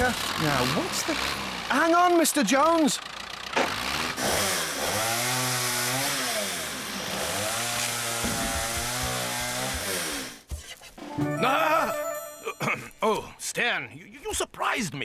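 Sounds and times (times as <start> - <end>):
cartoon chainsaw revving: 0.0 - 10.5.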